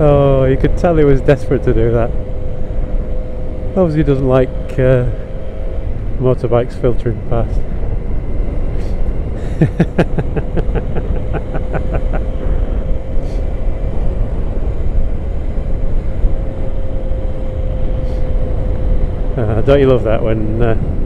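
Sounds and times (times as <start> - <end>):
motorcycle engine drone: 0.0 - 21.0
wind rumble on microphone: 0.0 - 21.0.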